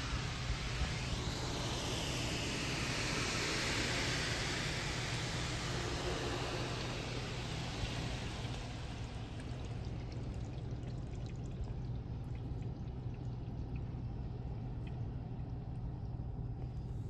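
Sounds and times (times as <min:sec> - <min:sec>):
low hum: 0:00.0 - 0:17.0
water pouring off a car: 0:03.9 - 0:15.6.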